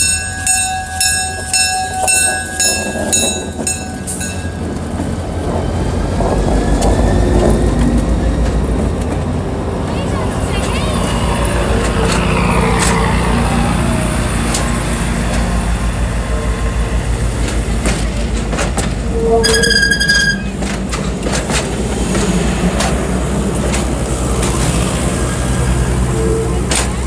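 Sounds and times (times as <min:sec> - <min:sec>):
train cars rumbling: 0:00.0 - 0:27.0
wheels clicking over rail joints: 0:00.0 - 0:27.0
high wheel squeal: 0:19.0 - 0:20.7.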